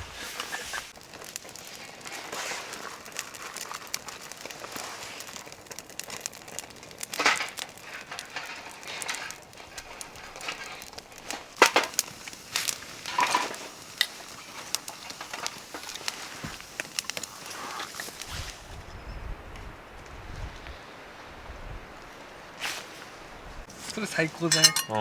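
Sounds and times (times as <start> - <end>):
sharp pops from fire: 0.0 - 18.8
wood fire crackling: 0.0 - 25.0
rustling handling noises: 22.6 - 25.0.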